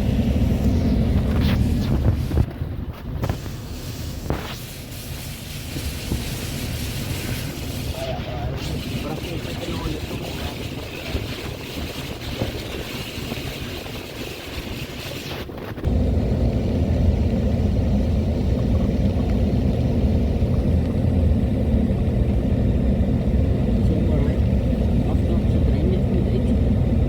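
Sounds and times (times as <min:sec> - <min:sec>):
vehicle engine rumbling: 0:00.0 - 0:27.0.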